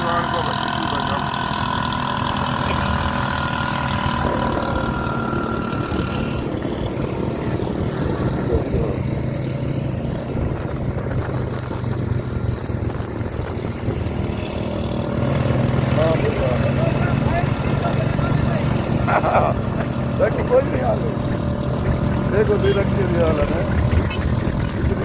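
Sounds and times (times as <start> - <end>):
road noise: 0.0 - 25.0
vehicle engine running: 0.0 - 25.0.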